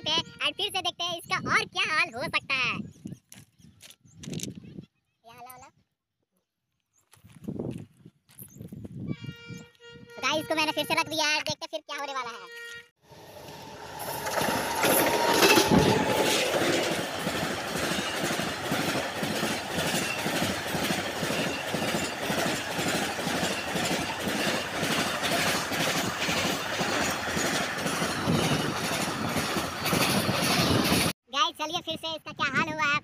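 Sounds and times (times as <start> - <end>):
freight train wheels clattering: 13.2 - 31.1.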